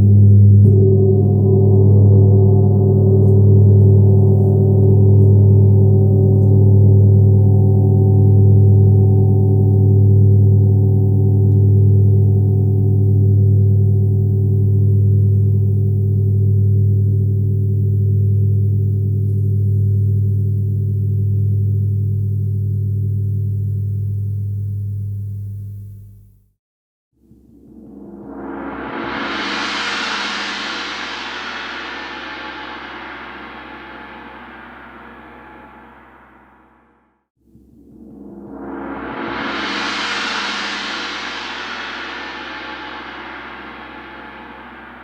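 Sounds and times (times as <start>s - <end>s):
gong ringing: 0.3s - 16.7s.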